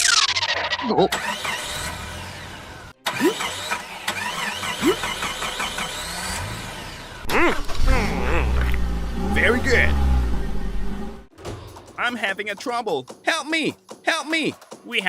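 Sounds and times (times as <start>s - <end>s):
vehicle engine starting and running: 0.0s - 11.9s.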